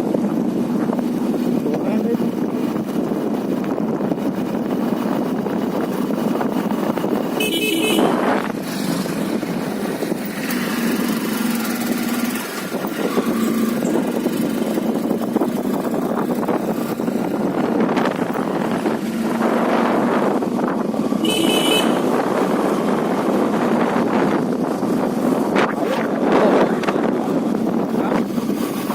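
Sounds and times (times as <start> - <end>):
motorcycle engine running: 0.0 - 28.9
wind and road noise: 0.0 - 28.9
horn beep: 7.4 - 8.4, 21.2 - 22.2.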